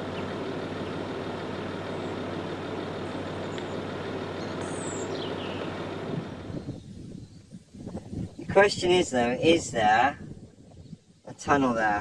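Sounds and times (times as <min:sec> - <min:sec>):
truck engine drone: 0:00.0 - 0:07.1
road noise: 0:00.0 - 0:12.0
bird chirping: 0:01.8 - 0:02.3, 0:02.9 - 0:08.4.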